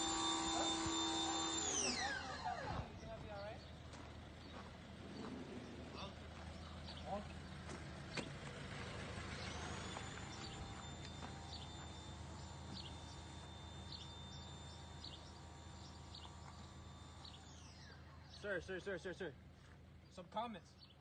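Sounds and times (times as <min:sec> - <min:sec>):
high-pitched whine: 0:00.0 - 0:03.5, 0:08.9 - 0:19.2
birds chirping: 0:00.0 - 0:21.0.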